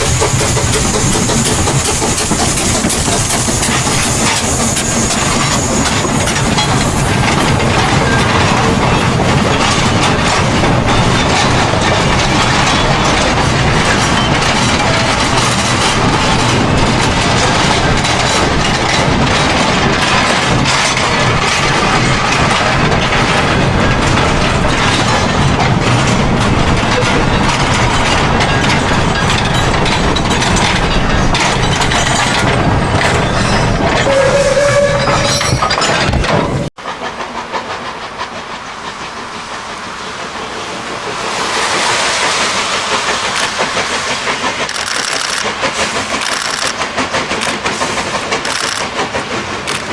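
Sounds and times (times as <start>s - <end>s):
steam train rumbling: 0.0s - 49.9s
wheels clattering on rails: 0.0s - 49.9s.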